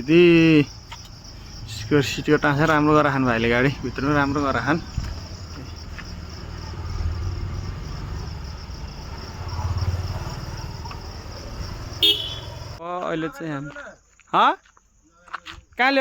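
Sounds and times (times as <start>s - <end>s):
truck diesel engine rumbling: 0.0s - 12.8s
insects chirring: 0.0s - 16.0s.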